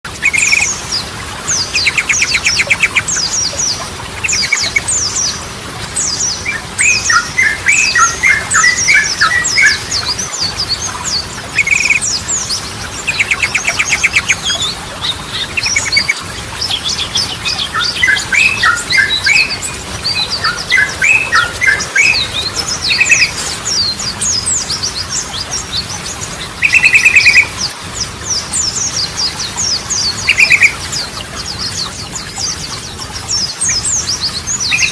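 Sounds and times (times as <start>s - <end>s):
bulbul singing chattering trills: 0.1s - 34.9s
fast high falling chirps: 17.2s - 25.0s.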